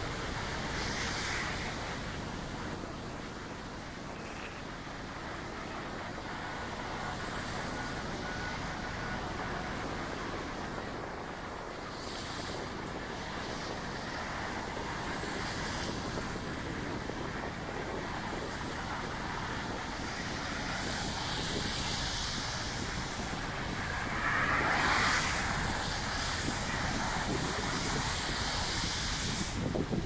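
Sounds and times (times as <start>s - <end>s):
rain on wet street: 0.0s - 4.0s, 11.7s - 30.0s
traffic noise: 0.0s - 30.0s
vehicle swishing past on wet road: 23.8s - 29.7s.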